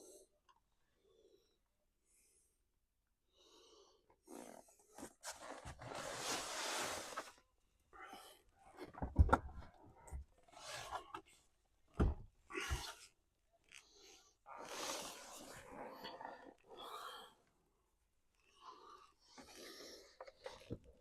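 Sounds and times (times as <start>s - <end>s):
rustling and scraping: 4.8s - 7.4s.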